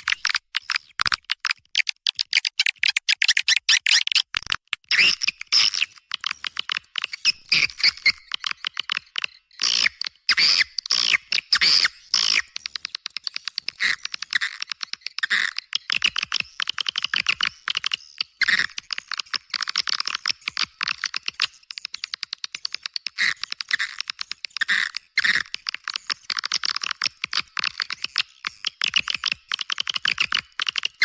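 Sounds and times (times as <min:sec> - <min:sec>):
swiftlet calls with dry clicks: 0:00.0 - 0:31.0.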